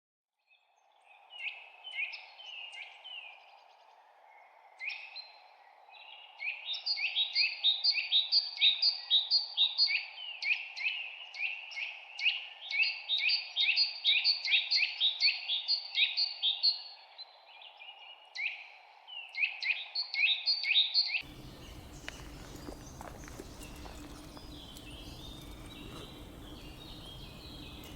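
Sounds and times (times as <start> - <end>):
birds calling sharp slurred notes: 21.2 - 27.9
steady low hum: 21.2 - 27.9.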